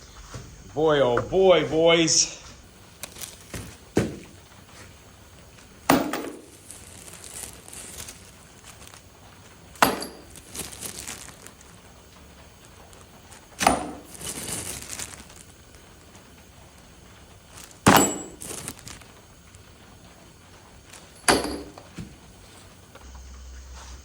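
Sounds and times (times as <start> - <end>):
metal tools clanking: 5.8 - 8.1, 9.8 - 11.0, 17.8 - 18.9, 20.9 - 23.0.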